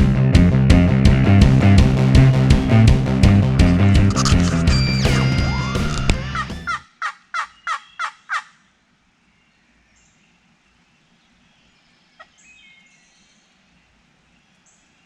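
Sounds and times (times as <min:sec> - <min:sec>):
wild turkey calling: 0:03.9 - 0:08.8
faint songbirds: 0:06.3 - 0:15.0.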